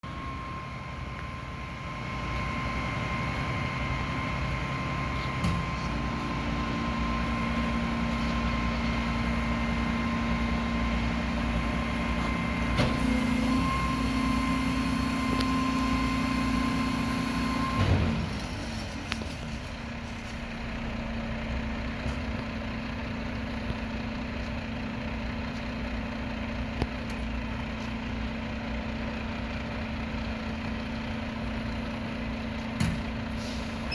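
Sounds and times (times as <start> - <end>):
hydraulic whine: 0.0 - 19.4.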